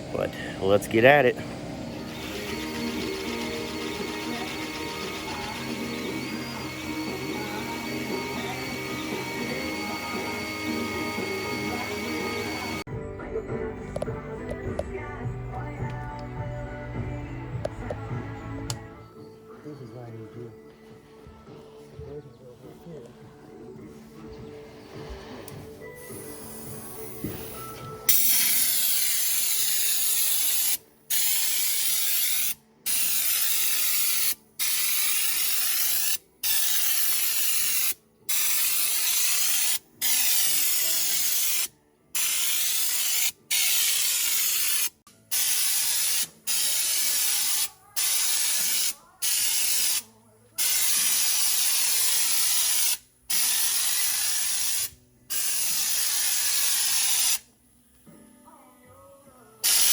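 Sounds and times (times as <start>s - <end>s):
spray gun hissing: 24.9s - 57.4s, 59.6s - 59.9s.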